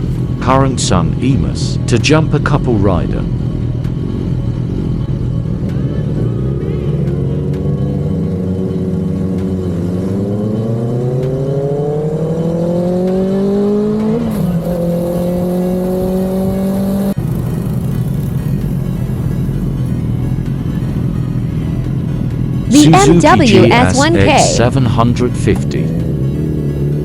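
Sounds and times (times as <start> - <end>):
motorcycle engine accelerating: 3.3 - 19.2.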